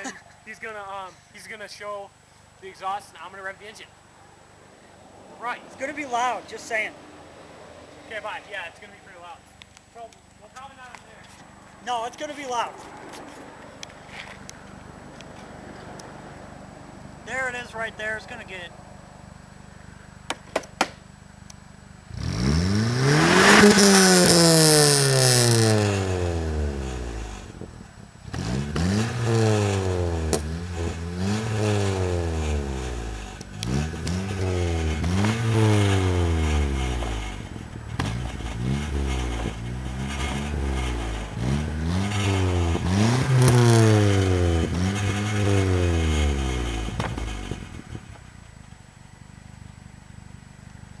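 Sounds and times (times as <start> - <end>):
car engine revving: 22.0 - 48.4.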